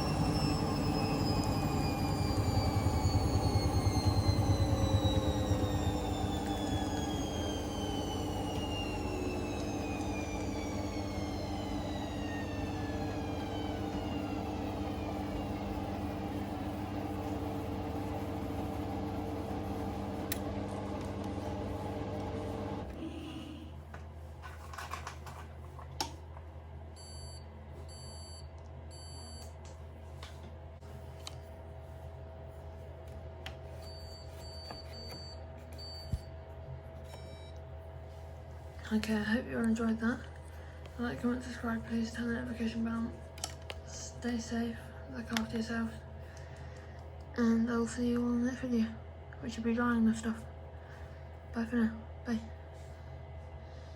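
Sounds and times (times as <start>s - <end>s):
washing machine high beeps: 0.0s - 20.2s, 27.0s - 29.5s, 33.7s - 36.3s, 37.0s - 37.6s
steady low hum: 0.0s - 24.6s
washing machine motor whine: 0.0s - 26.1s, 30.8s - 53.9s.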